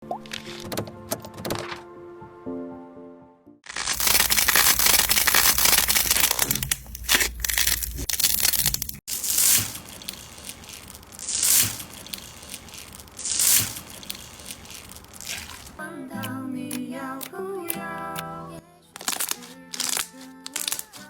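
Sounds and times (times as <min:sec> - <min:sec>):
slime crackling when squeezed: 0:03.7 - 0:15.8, 0:19.0 - 0:21.0.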